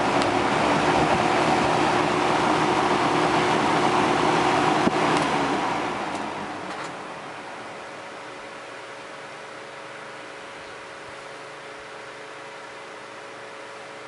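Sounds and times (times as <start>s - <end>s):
box fan running: 0.0s - 14.0s
fan switch click: 4.8s - 5.4s.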